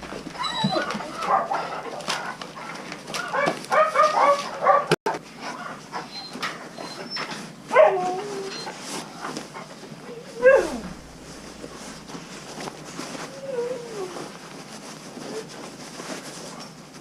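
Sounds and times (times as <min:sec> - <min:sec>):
dogs whining and yelping: 0:00.0 - 0:05.0, 0:05.9 - 0:11.8, 0:13.0 - 0:14.4.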